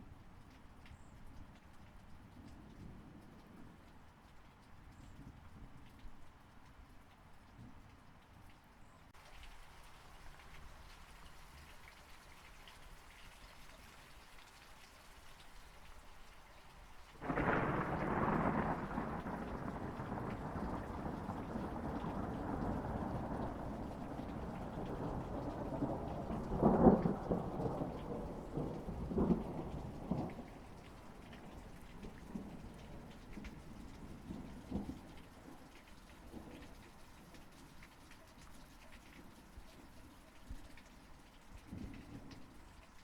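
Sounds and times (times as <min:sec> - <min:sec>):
steady rain falling: 0:00.0 - 0:43.0
thunderclap with rumble: 0:17.2 - 0:35.2.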